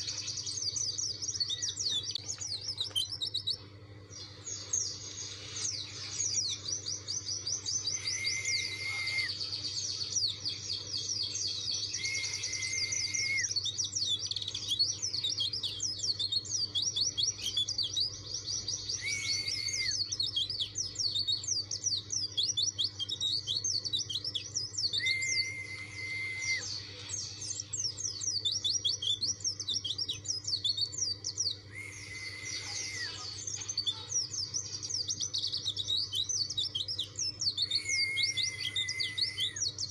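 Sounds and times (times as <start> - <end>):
bird twittering song: 0.0 - 39.9
held lower bird whistle: 7.6 - 9.5, 11.7 - 13.7, 18.9 - 20.5, 23.2 - 27.7, 31.5 - 34.1, 36.3 - 39.9.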